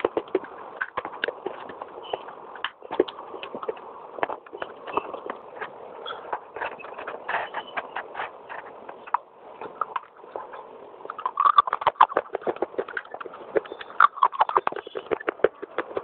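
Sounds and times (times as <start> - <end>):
clay being chewed crunching: 0.0 - 16.0.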